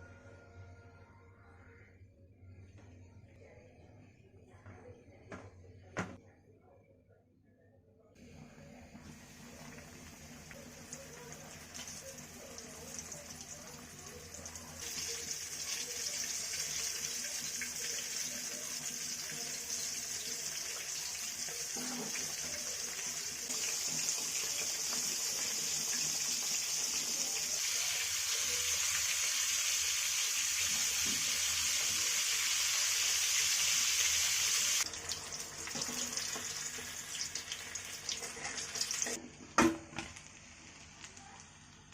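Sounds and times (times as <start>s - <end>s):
chicken deep-frying in oil: 8.4s - 41.9s.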